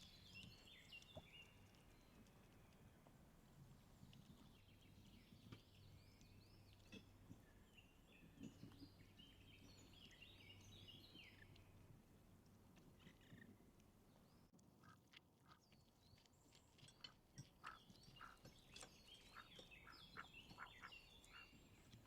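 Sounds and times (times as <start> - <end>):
birds chirping: 16.8 - 22.0.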